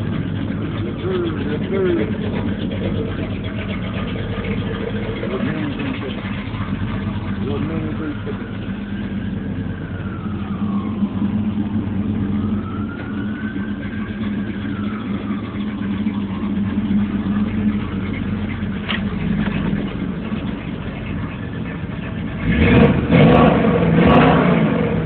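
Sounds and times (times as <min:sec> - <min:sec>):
distant siren rising and falling: 0:00.0 - 0:25.0
truck engine idling and revving: 0:00.0 - 0:25.0.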